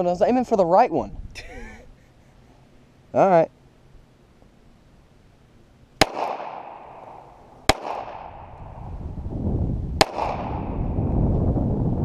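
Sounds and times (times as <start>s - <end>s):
revolver gunshots with echo: 6.0s - 8.8s, 10.0s - 11.0s
low rumble: 6.8s - 12.0s.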